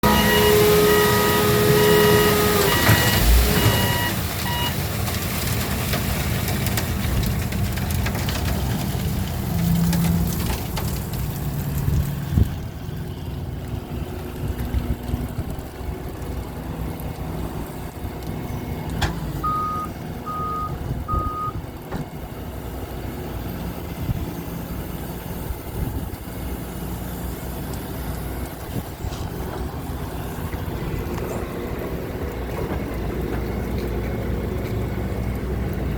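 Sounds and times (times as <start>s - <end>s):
reversing alarm beeping: 0.0s - 4.8s, 19.4s - 21.6s
heavy equipment engines running: 0.0s - 35.9s
short beeps: 19.4s - 21.6s.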